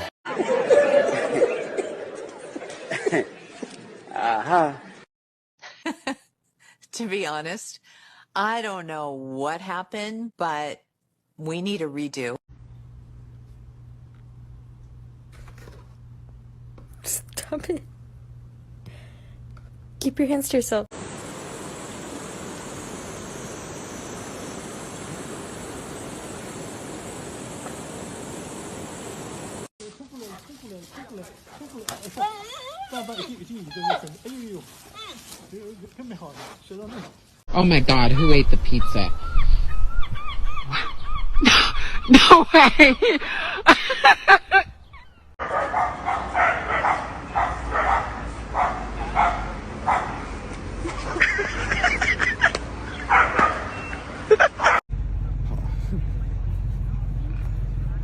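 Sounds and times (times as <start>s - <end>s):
steady rushing hiss: 20.9s - 29.7s
dog yipping: 45.4s - 50.1s, 53.0s - 53.9s.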